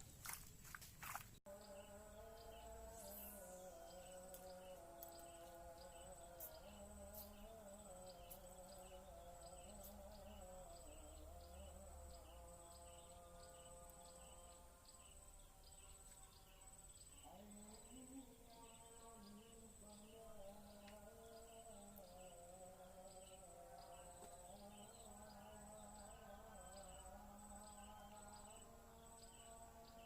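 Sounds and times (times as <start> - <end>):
insects chirping: 0.0 - 30.0
soft wavering drone: 1.5 - 30.0.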